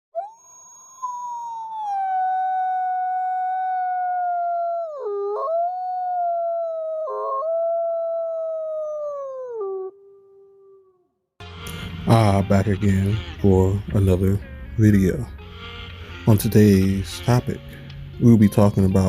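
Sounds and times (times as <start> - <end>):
wolf howling: 1.1 - 11.0.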